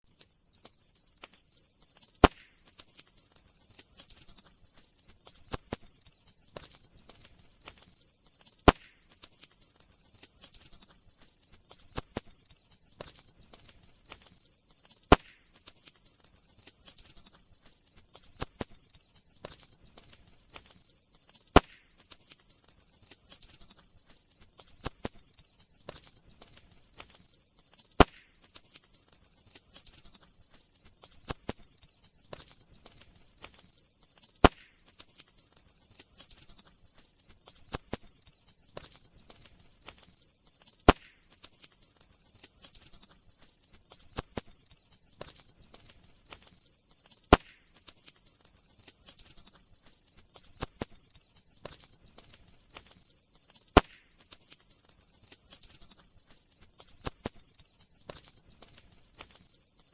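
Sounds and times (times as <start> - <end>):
faint steady hiss: 0.0 - 59.9
campfire crackling: 0.1 - 59.9
loud fire pop: 2.2 - 2.7, 8.6 - 9.0, 15.1 - 15.5, 21.6 - 21.9, 28.0 - 28.4, 34.4 - 34.8, 40.9 - 41.2, 47.3 - 47.6, 53.8 - 54.1.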